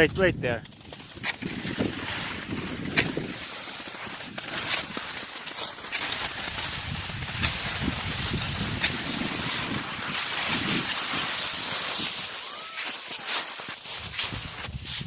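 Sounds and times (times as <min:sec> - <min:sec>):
wind buffeting microphone: 0:00.0 - 0:03.5, 0:06.5 - 0:10.9.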